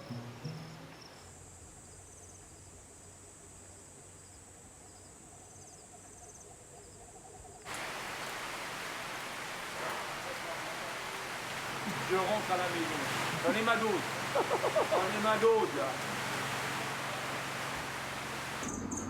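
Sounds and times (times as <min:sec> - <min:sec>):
insects buzzing and trilling: 0:00.0 - 0:19.0
loud steady rushing noise: 0:07.7 - 0:18.7.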